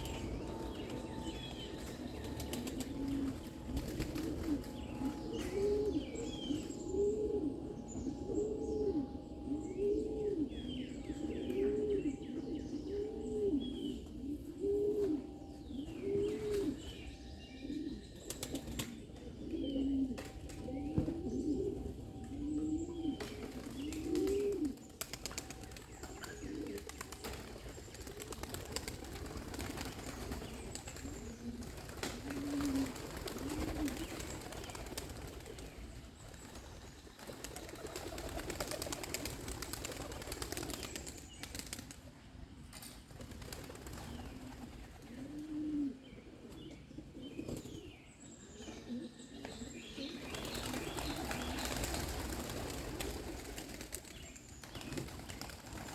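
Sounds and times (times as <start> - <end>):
wings flapping: 0.0 - 5.7, 23.2 - 42.0, 43.1 - 45.0, 50.4 - 54.1, 54.7 - 55.9
young pigeons cooing: 0.0 - 42.0, 42.8 - 55.9.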